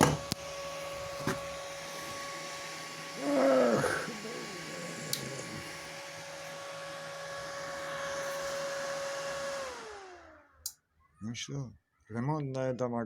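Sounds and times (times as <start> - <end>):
cooling fan whooshing and humming: 0.0 - 10.3.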